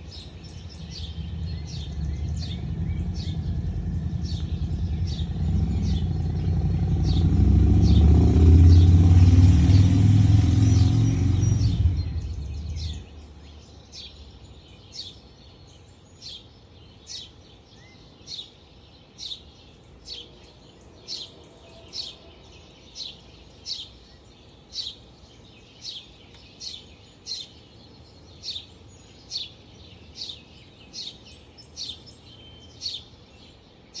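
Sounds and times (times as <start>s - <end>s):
vehicle passing with low rumble: 0.0s - 14.5s
bird chirping: 0.0s - 34.0s.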